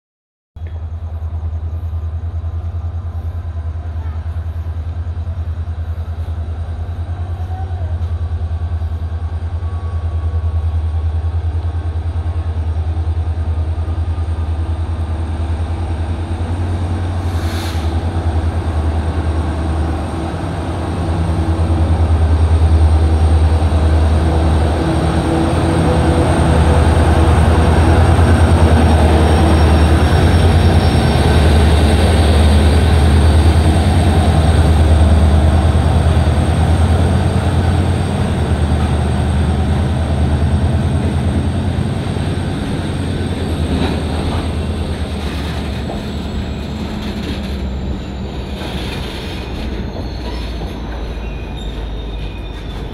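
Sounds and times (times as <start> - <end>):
diesel locomotive engine rumble: 0.6 - 52.9
brief hiss: 17.2 - 18.0.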